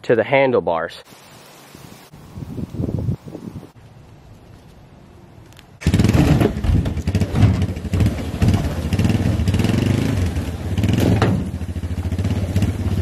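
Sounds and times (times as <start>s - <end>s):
dirt bike engine revving: 5.8s - 13.0s.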